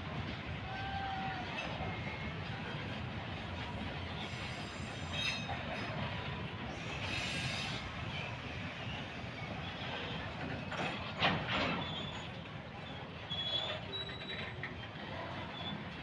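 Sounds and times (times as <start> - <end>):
wagons rumbling on track: 0.0 - 16.0
wheels squealing: 6.7 - 16.0.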